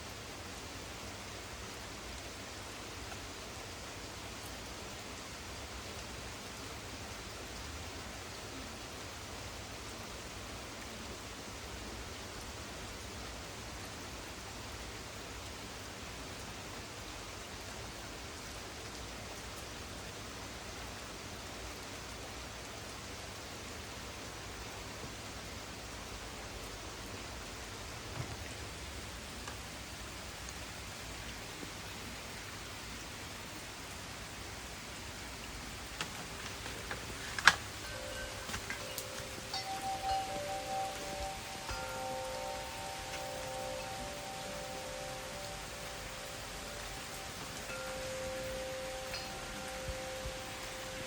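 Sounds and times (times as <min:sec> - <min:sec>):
rain falling: 0:00.0 - 0:51.0
wind chimes ringing: 0:37.8 - 0:51.0.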